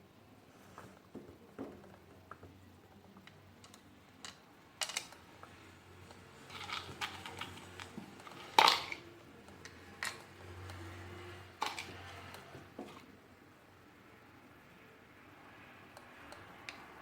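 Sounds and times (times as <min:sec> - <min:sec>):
plastic parts clicking and knocking: 0:00.8 - 0:10.8, 0:11.6 - 0:13.1.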